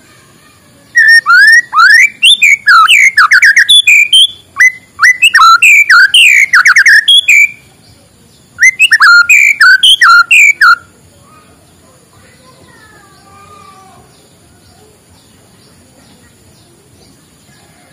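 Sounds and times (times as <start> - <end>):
bird singing whistled notes: 0.9 - 10.9.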